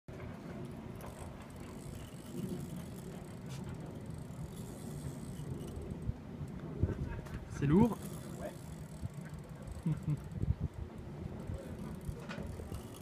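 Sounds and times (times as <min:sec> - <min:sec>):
fishing reel ticking: 0:00.6 - 0:06.6, 0:07.6 - 0:13.0.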